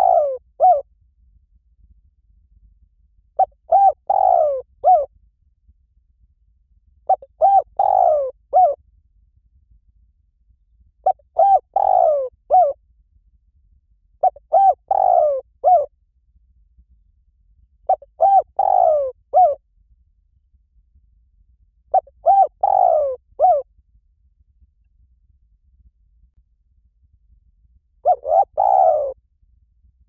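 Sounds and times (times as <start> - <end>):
dove cooing: 0.0 - 0.8, 3.4 - 5.1, 7.1 - 8.8, 11.0 - 12.8, 14.2 - 15.9, 17.9 - 19.6, 21.9 - 23.7, 28.0 - 29.2.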